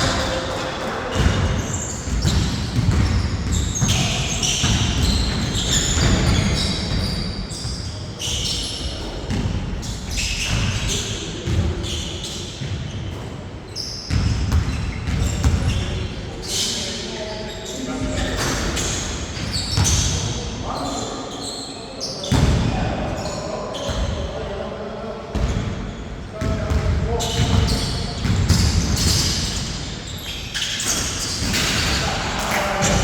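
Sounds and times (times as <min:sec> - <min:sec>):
basketball bouncing on court: 0:00.0 - 0:07.2, 0:08.2 - 0:09.7, 0:14.1 - 0:15.9, 0:26.4 - 0:29.8
sneakers squeaking on floor: 0:00.0 - 0:24.4, 0:25.3 - 0:33.0.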